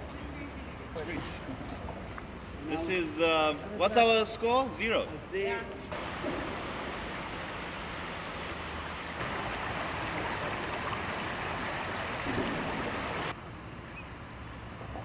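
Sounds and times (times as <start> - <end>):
river water rushing: 6.0 - 13.4.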